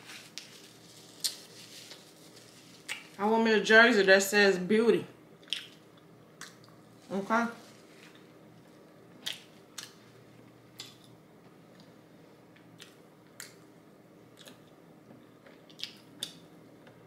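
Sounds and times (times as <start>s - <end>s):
mouth clicks and crunches: 2.8s - 3.2s, 5.4s - 6.8s, 14.4s - 14.7s, 15.4s - 16.4s
person chewing french fries: 5.4s - 6.8s, 8.1s - 10.0s, 10.7s - 11.9s, 14.3s - 17.0s.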